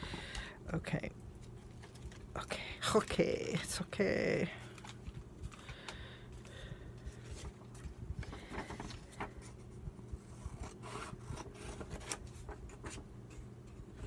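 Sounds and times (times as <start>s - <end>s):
faint low hum: 0.0s - 14.0s
paper rustling: 4.6s - 9.7s, 10.3s - 14.0s.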